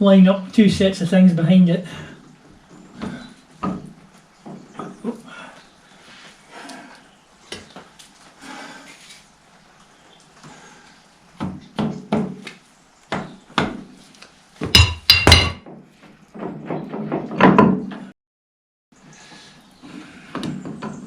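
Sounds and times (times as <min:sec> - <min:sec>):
hammer on metal: 0:14.7 - 0:15.6.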